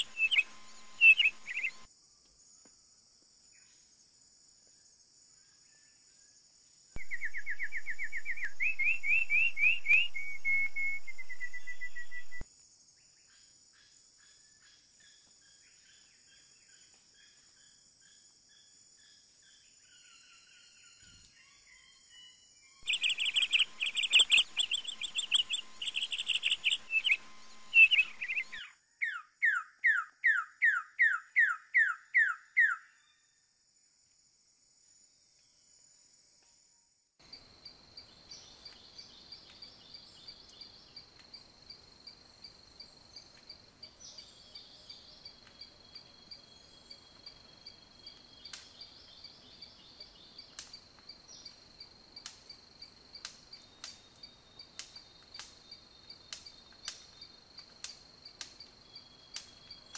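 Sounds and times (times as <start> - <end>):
birds chirping rapidly: 0.0 - 1.9, 22.8 - 29.2
downward-sweeping whistled bird notes: 0.0 - 1.9, 7.0 - 12.4, 19.9 - 33.2
high-pitched insect ticking: 0.0 - 1.9, 22.8 - 28.6
high insect hum: 0.0 - 59.9.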